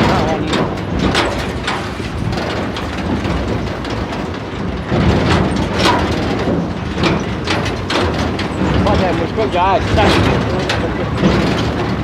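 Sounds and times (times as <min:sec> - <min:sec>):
tractor engine rattling: 0:00.0 - 0:12.0.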